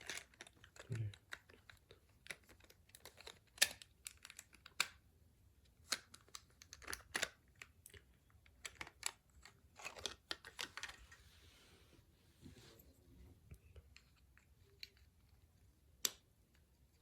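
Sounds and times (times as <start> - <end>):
plastic toy parts clicking: 0.0 - 5.0, 5.8 - 11.0.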